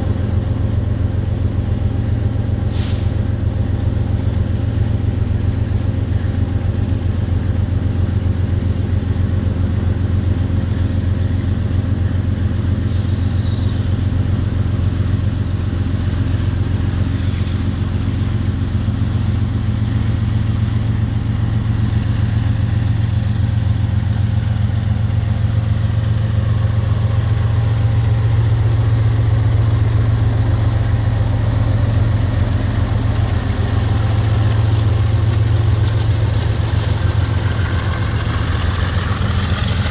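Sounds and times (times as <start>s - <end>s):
diesel locomotive engine drone: 0.0s - 39.9s.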